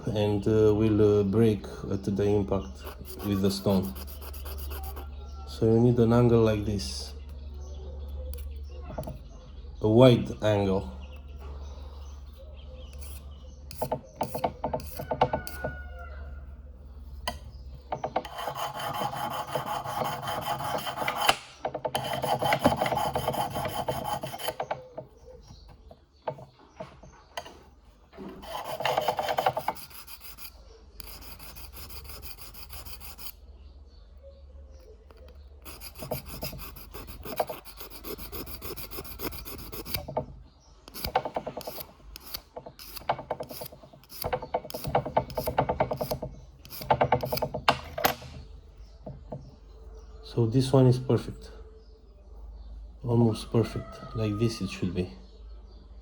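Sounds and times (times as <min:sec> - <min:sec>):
sharpening stone rasping on metal: 0:02.6 - 0:05.2, 0:12.8 - 0:15.7, 0:18.1 - 0:24.8, 0:28.3 - 0:33.4, 0:35.6 - 0:40.2, 0:40.9 - 0:48.3.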